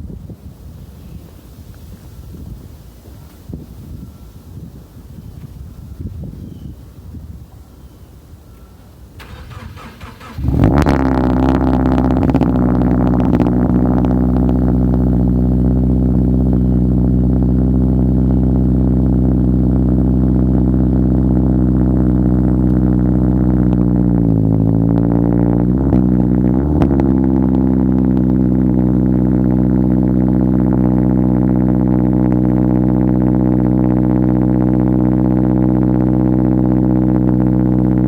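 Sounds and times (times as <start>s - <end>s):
car engine idling: 9.0s - 38.0s.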